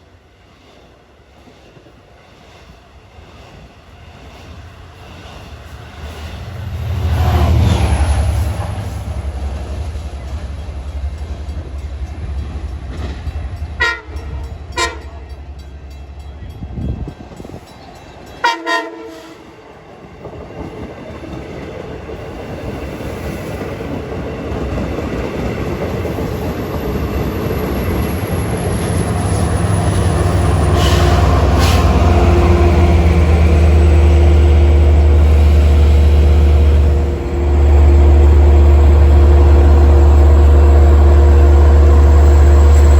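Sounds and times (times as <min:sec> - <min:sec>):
diesel locomotive engine: 0:00.0 - 0:42.9
train horn blasts: 0:13.8 - 0:15.4, 0:18.4 - 0:19.6.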